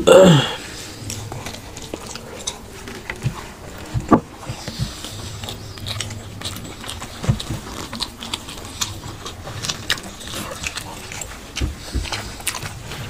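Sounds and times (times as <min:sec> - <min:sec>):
chewing and lip-smacking: 0:00.6 - 0:13.0.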